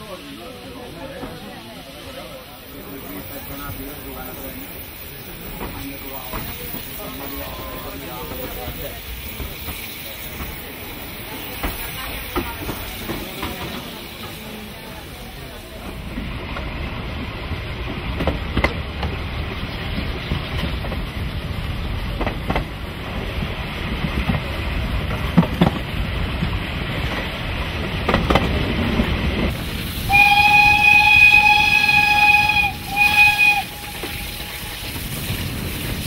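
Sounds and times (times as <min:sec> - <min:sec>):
steam train running: 0:00.0 - 0:36.0
steam locomotive whistle blast: 0:30.0 - 0:35.2.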